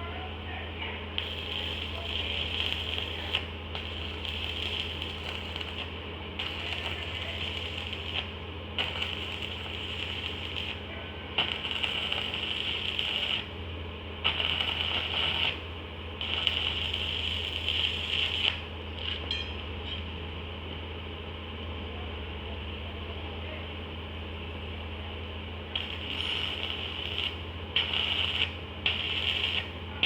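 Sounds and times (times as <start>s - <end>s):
machine motor humming: 1.0s - 21.1s, 25.4s - 30.0s
sharp metal clinks: 19.2s - 20.0s.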